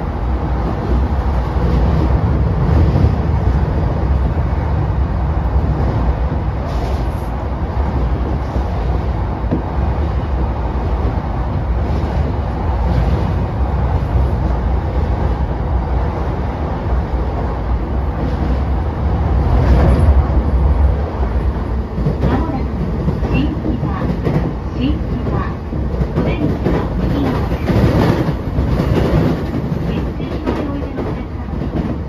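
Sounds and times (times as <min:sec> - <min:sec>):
train rumbling on track: 0:00.0 - 0:32.0.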